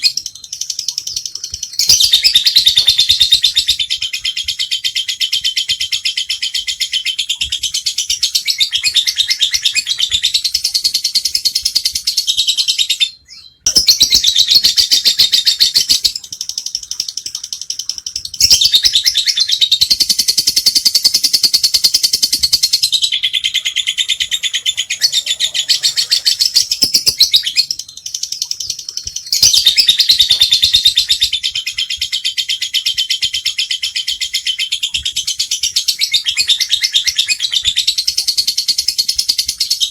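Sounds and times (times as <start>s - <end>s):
lovebird chattering: 13.7s - 34.7s.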